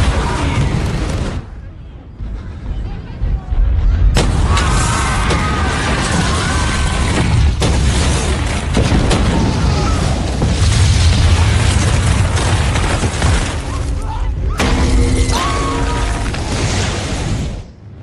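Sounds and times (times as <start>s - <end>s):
explosion deep roar: 2.2s - 7.8s
film music score: 13.8s - 18.0s.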